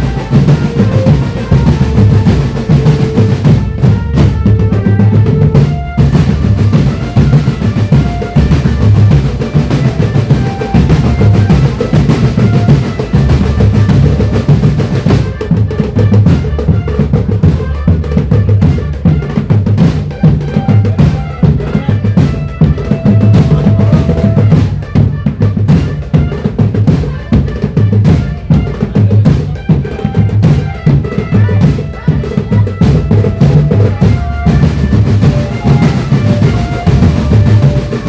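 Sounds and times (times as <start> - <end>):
bass drums pounding: 0.0 - 38.0
snare drums and rolls: 0.0 - 38.0.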